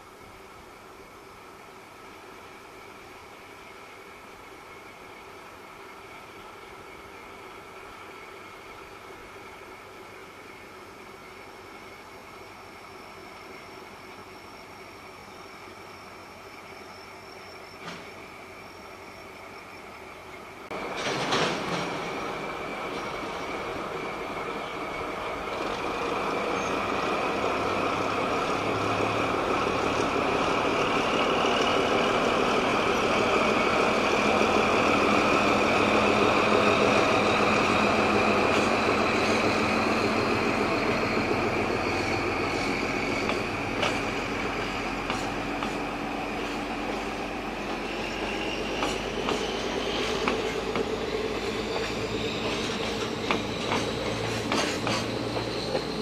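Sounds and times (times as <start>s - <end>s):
freight train rumble: 0.0s - 56.0s
wheels clicking over rail joints: 20.7s - 23.4s, 43.2s - 47.0s, 47.6s - 56.0s.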